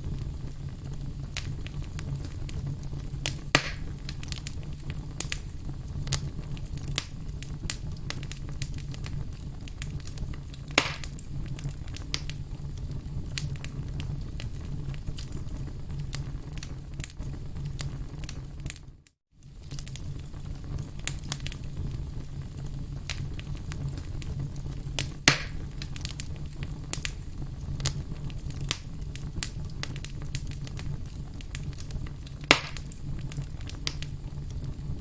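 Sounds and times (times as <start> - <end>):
fire popping: 0.0 - 35.0
firewood crackling: 0.0 - 35.0.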